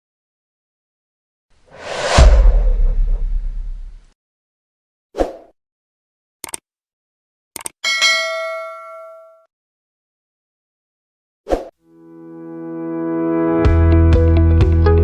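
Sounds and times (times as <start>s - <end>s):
quick clicks: 6.4s - 6.6s, 7.6s - 7.8s
bright bell-like ding: 7.8s - 9.5s.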